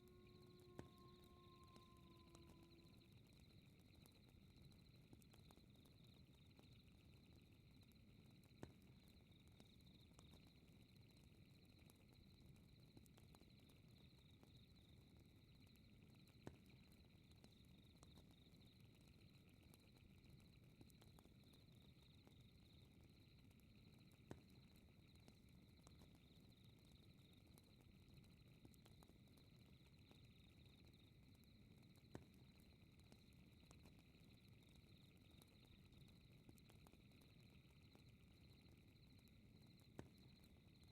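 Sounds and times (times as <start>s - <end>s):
crickets chirring: 0.0s - 4.6s
fireplace crackling and popping: 0.0s - 40.9s.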